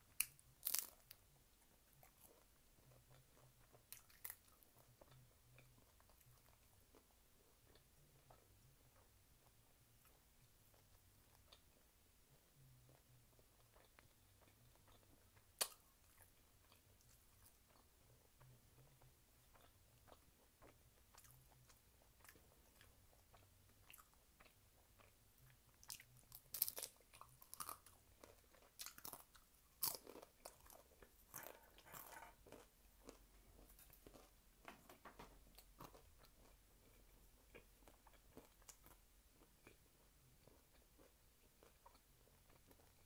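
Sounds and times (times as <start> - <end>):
crispy food crunching: 0.1 - 1.2, 1.9 - 7.1, 19.5 - 43.0
person chewing: 0.1 - 1.2, 1.9 - 8.4, 13.6 - 43.0.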